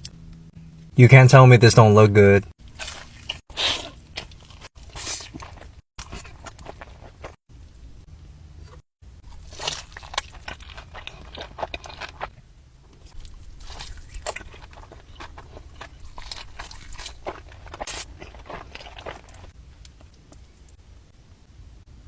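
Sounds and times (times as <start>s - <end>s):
crunchy chewing of fried food: 2.6s - 7.4s, 8.6s - 20.8s.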